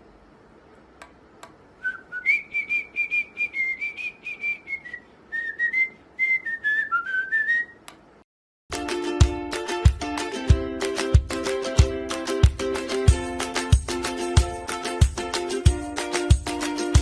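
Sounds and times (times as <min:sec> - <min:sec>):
bird whistling: 0:01.8 - 0:07.9.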